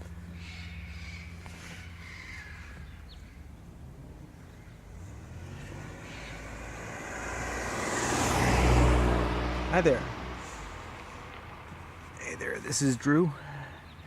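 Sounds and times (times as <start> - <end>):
low engine hum: 0.0 - 14.0
parrots screeching: 0.4 - 3.0.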